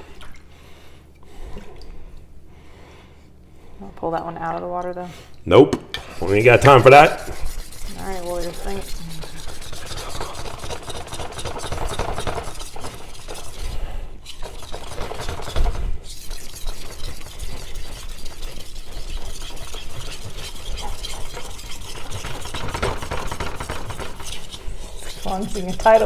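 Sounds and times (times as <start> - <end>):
knife scraping on whetstone: 6.0 - 26.0.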